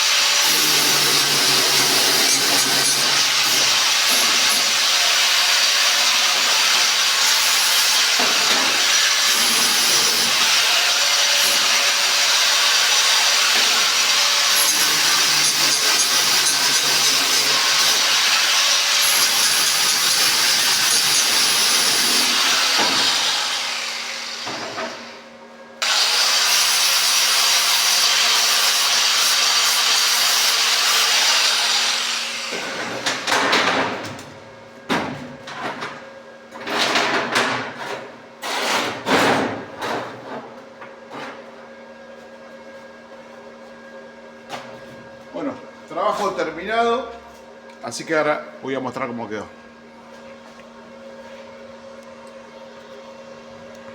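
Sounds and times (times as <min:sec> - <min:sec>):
angle grinder sanding metal: 0:00.0 - 0:24.4, 0:25.8 - 0:32.5.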